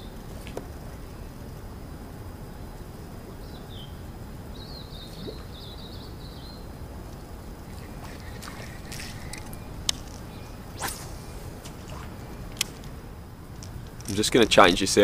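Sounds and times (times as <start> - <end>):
low background rumble: 0.0 - 15.0
small bird twittering: 7.6 - 12.8.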